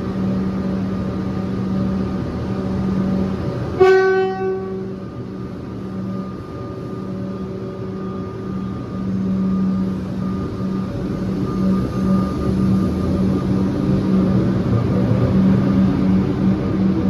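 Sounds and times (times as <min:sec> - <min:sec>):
electric train humming: 0:00.0 - 0:17.0
train horn toot: 0:03.8 - 0:05.1.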